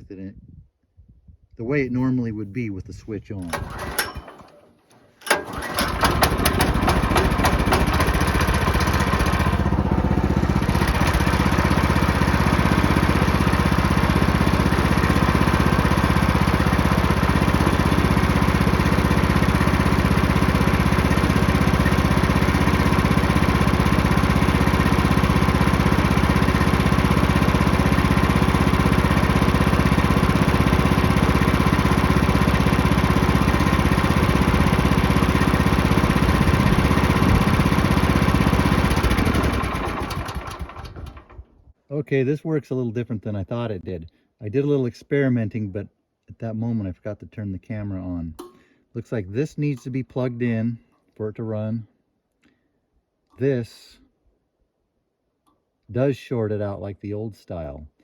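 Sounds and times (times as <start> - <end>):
sawmill engine running: 3.4 - 41.5.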